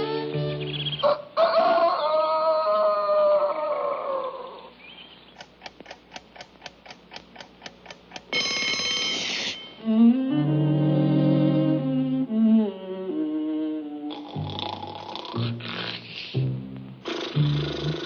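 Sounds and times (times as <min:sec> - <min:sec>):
music: 0:00.0 - 0:01.0, 0:08.7 - 0:18.0
cartoon rooster crowing: 0:01.0 - 0:04.7
faint clicks: 0:05.4 - 0:08.3.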